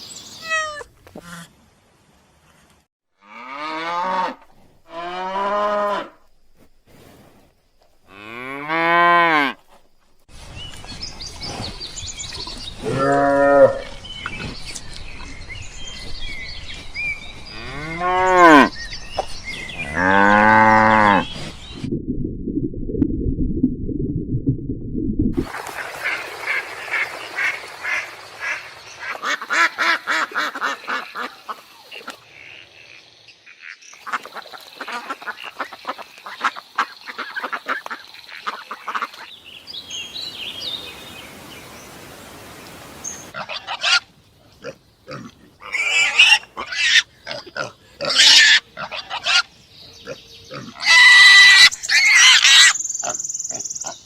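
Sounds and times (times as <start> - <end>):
ducks quacking: 25.8 - 32.5, 34.0 - 39.3.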